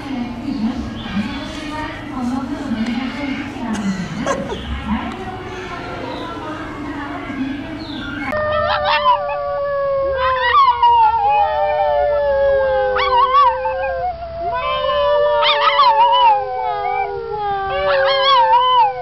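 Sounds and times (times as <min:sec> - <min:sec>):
dog howling: 0:08.0 - 0:19.0.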